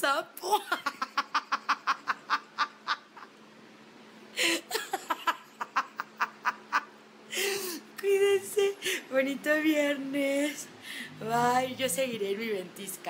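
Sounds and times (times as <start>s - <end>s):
woman laughing hard: 0.6s - 3.3s, 4.4s - 7.8s.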